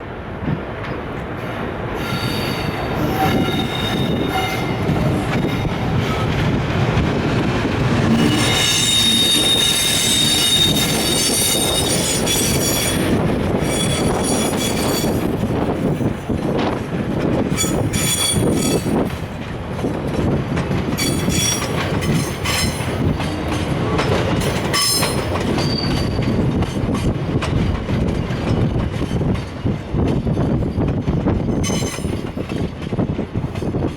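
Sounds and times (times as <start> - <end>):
high-pitched wheel and brake squeal: 2.0 - 4.9, 8.1 - 15.2, 24.8 - 26.2.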